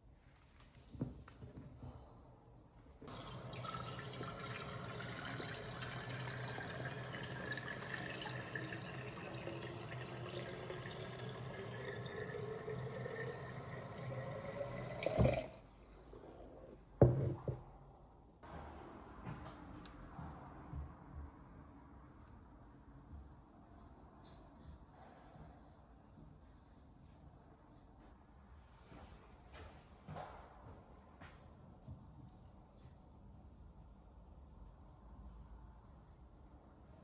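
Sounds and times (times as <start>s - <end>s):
tap running into a container: 3.1s - 15.6s.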